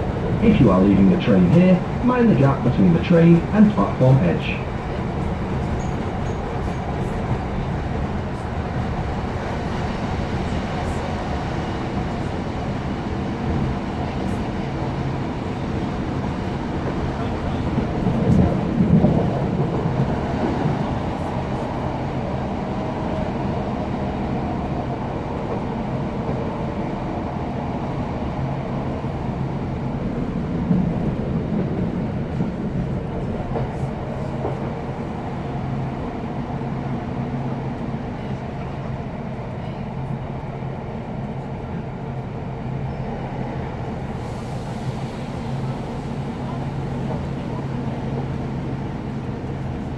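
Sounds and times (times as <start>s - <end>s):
diesel engine drone: 0.0s - 4.8s
train wheel and rail noise: 0.0s - 49.9s.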